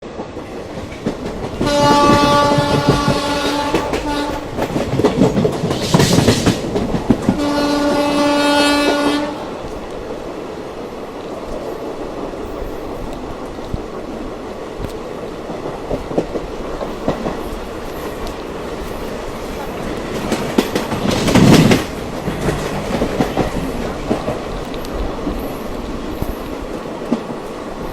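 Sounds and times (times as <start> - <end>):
train wheels clattering on rails: 0.0 - 27.9
train horn blasts: 1.6 - 4.5, 7.3 - 9.6.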